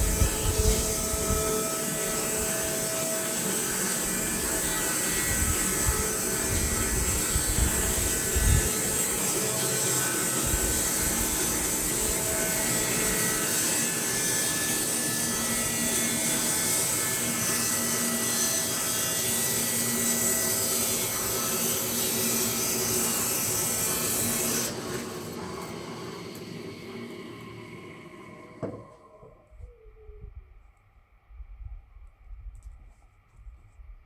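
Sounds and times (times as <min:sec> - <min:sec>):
bandsaw mill sawing log: 0:00.0 - 0:30.1.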